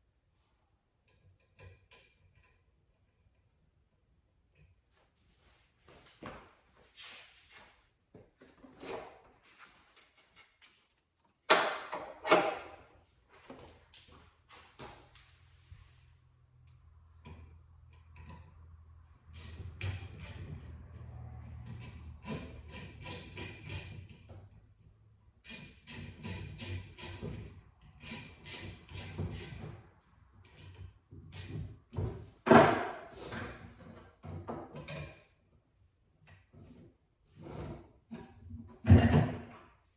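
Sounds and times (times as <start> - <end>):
parts knocking and scraping: 1.0 - 3.6, 7.6 - 16.0, 16.6 - 35.5, 36.2 - 39.8
tools knocking on car parts: 32.1 - 33.1.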